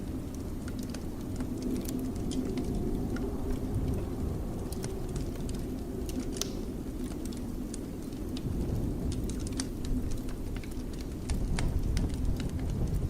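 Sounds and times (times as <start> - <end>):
blizzard wind rumble: 0.0 - 13.0
fireplace crackling: 0.0 - 13.0.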